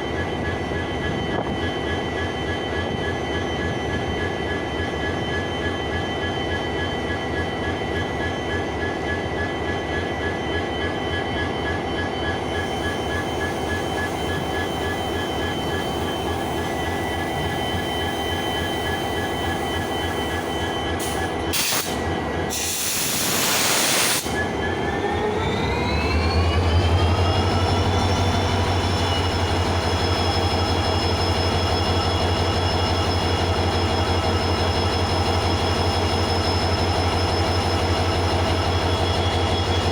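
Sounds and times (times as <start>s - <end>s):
locomotive diesel engine: 12.4s - 39.9s
air hiss: 21.0s - 24.4s.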